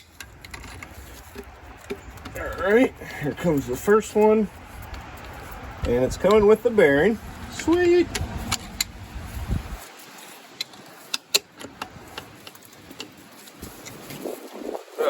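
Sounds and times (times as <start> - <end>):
light metallic clicks and taps: 0.0 - 9.0
low rumble: 7.0 - 9.8.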